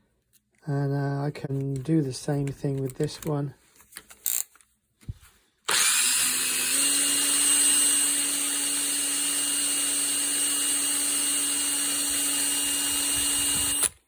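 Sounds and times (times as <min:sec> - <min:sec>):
power tool whining: 0:05.7 - 0:14.0.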